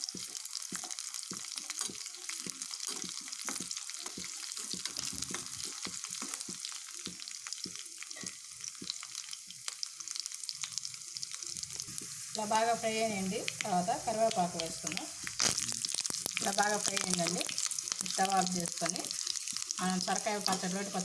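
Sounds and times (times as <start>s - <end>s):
spices sizzling in hot oil: 0.0s - 21.0s
sharp popping: 14.6s - 19.8s.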